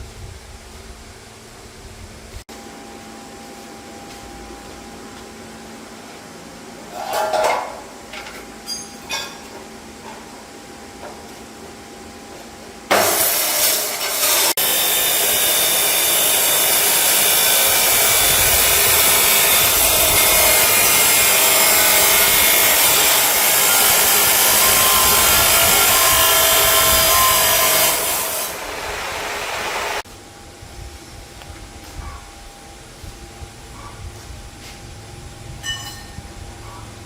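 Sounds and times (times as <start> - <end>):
angle grinder grinding metal: 12.9 - 30.0.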